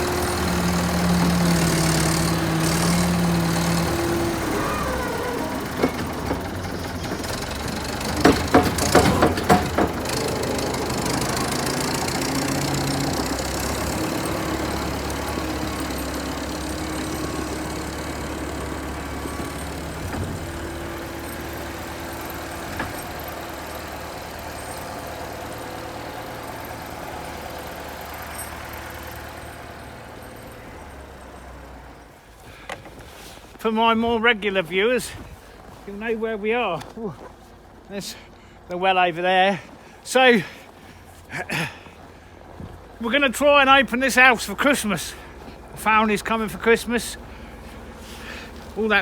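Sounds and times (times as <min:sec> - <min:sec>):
loud clanks: 0:00.0 - 0:25.0
tractor engine running: 0:00.0 - 0:49.0.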